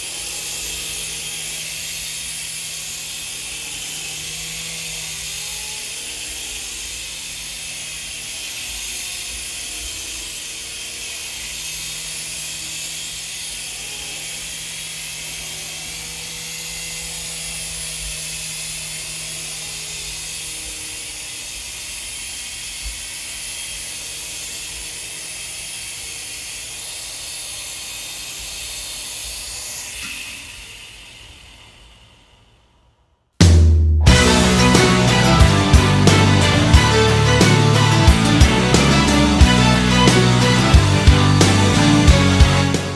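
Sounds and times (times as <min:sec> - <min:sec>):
rc helicopter motor and rotors whirring: 0:00.0 - 0:33.2.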